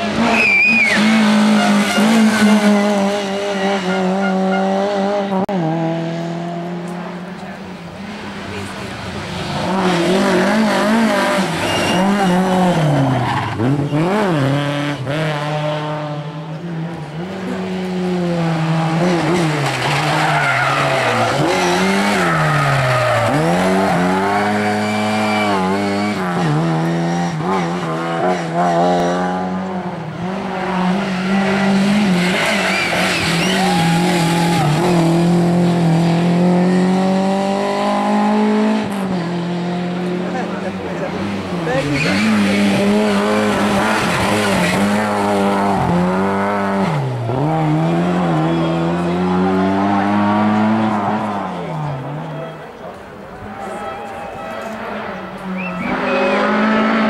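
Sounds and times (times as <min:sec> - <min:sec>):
rally car engines revving: 0:00.0 - 0:57.0
tyres squealing and skidding: 0:00.1 - 0:05.0, 0:08.5 - 0:14.5, 0:19.2 - 0:26.6, 0:30.6 - 0:35.5, 0:40.6 - 0:46.0, 0:51.2 - 0:56.9.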